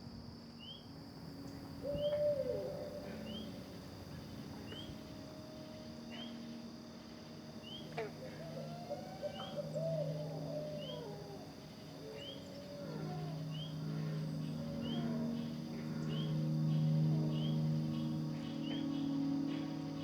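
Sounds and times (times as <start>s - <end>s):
insect drone: 0.0s - 20.0s
owl hooting: 1.8s - 3.7s, 7.6s - 20.0s.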